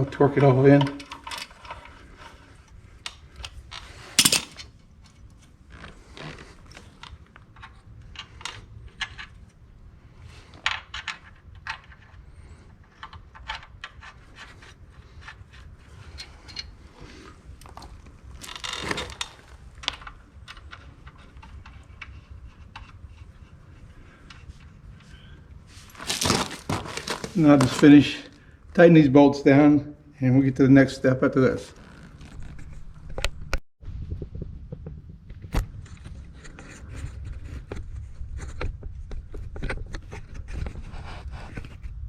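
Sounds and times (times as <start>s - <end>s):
wrenches and bolts clinking: 0.4s - 1.9s, 4.2s - 4.7s
metal clank: 4.2s - 4.6s
metal scraping: 4.2s - 4.7s.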